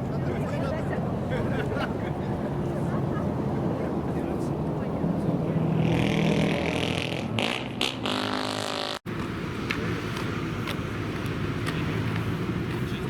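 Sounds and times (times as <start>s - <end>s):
car engines running: 9.1s - 13.0s.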